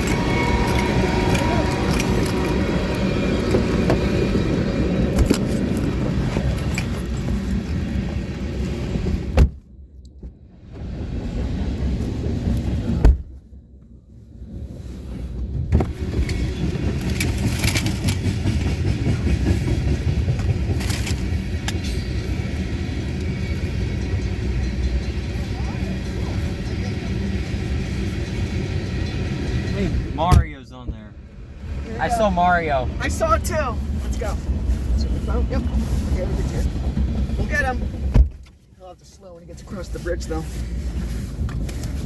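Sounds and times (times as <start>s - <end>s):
vehicle rumble: 0.0s - 42.0s.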